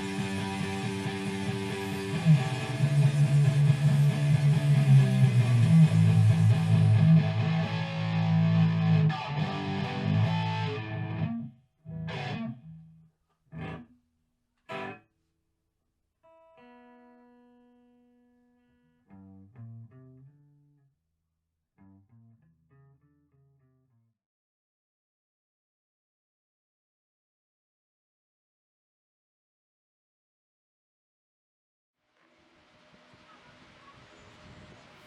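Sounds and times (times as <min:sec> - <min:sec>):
electric guitar music: 0:00.0 - 0:13.9, 0:14.7 - 0:15.0, 0:16.3 - 0:20.7.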